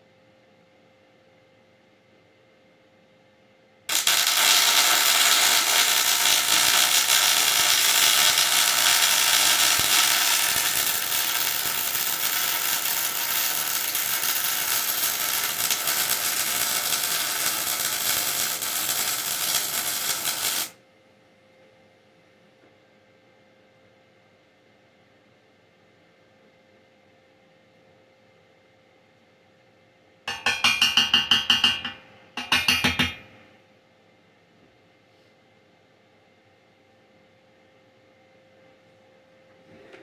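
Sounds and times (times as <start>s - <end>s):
welding arc crackling: 3.9s - 20.8s.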